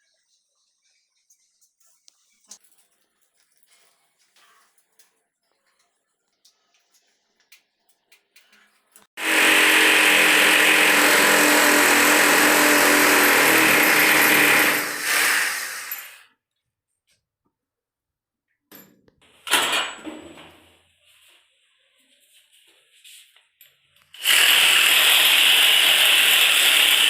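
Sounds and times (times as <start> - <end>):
electric drill boring into wall: 9.2 - 16.2, 24.2 - 27.0.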